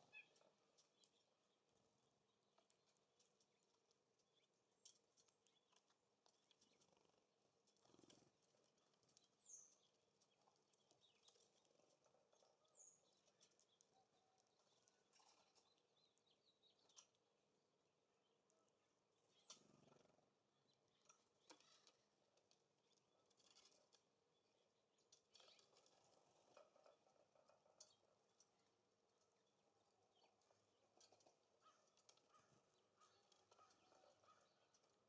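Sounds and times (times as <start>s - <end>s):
soft ticks and taps: 0.3s - 17.2s.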